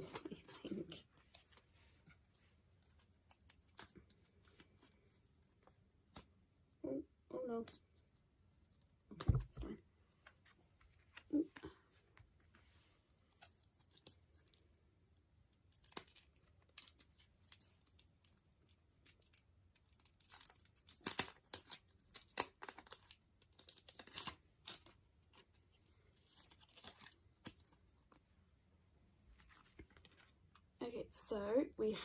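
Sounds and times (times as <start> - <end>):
packaging tearing and crinkling: 19.8 - 24.9.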